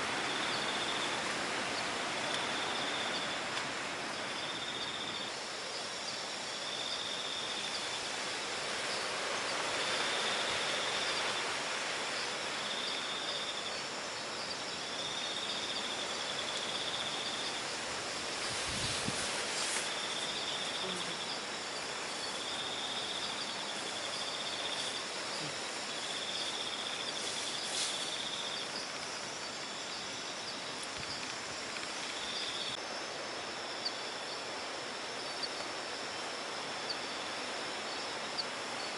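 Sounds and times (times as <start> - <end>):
insects trilling: 0.0 - 38.9
wind noise: 17.8 - 20.0.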